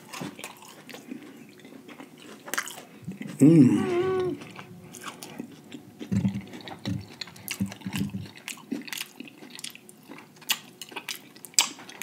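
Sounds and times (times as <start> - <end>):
wet chewing and mouth clicks: 0.0 - 3.4, 4.4 - 12.0
low muffled thumps: 6.0 - 8.3.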